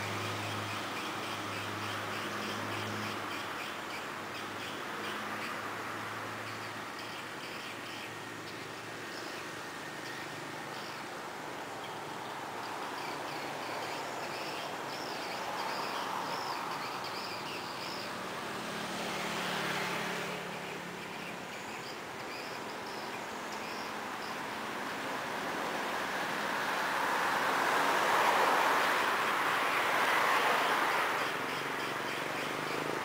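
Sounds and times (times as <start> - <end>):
high wavering bird chirps: 6.4 - 11.2, 11.8 - 18.4, 20.3 - 24.6.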